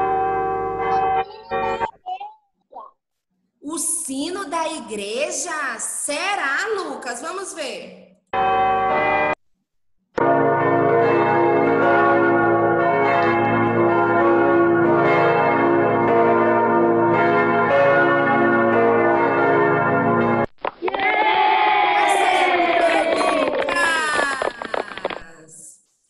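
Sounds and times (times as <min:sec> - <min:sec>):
church bells pealing: 0:00.0 - 0:01.9, 0:08.4 - 0:09.4, 0:10.2 - 0:20.4.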